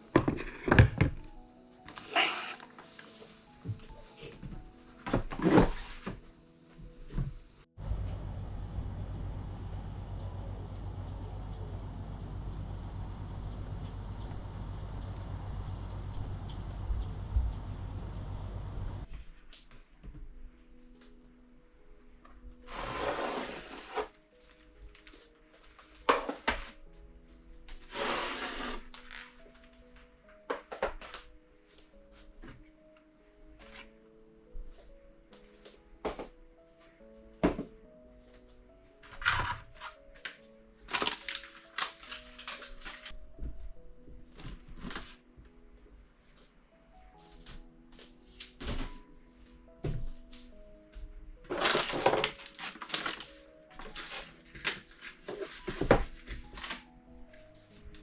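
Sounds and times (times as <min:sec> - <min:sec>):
kitchen items clattering in cupboard: 0:00.0 - 0:01.3, 0:39.0 - 0:40.0, 0:51.5 - 0:56.8
soft background music: 0:00.0 - 0:58.0
low rumbling noise: 0:07.8 - 0:19.0
items sliding in a cupboard: 0:22.6 - 0:24.2, 0:27.8 - 0:29.4.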